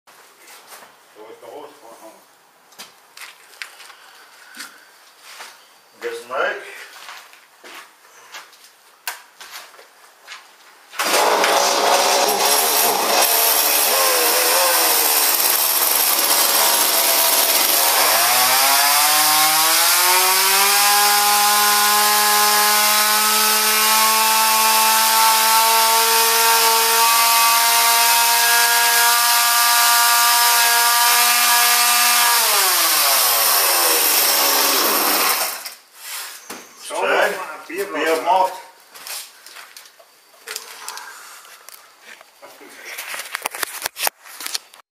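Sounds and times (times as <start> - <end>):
chainsaw revving: 11.0 - 35.7.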